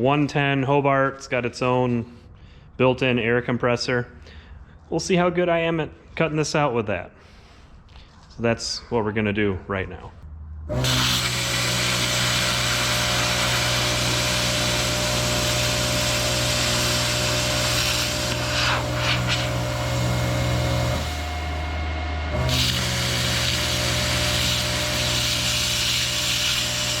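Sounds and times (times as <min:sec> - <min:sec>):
electrical hum: 0:10.1 - 0:27.0
plasma cutter hissing: 0:10.8 - 0:27.0.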